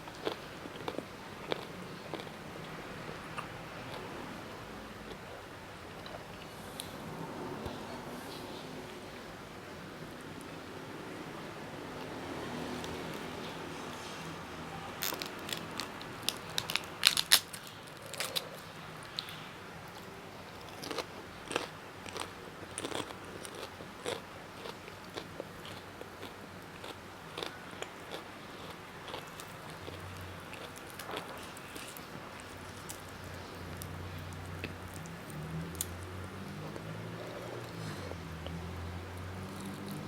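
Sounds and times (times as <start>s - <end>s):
person chewing crunchy food: 0.1s - 4.0s, 15.0s - 20.0s, 20.6s - 40.0s.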